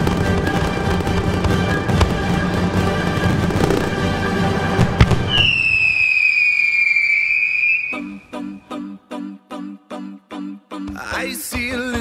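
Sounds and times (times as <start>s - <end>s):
fireworks crackling and bursting: 0.0s - 8.0s
a cappella singing: 7.9s - 12.0s.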